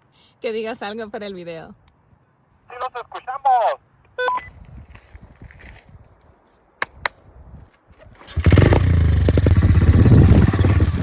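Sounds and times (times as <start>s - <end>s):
small motorbike engine running: 8.2s - 11.0s.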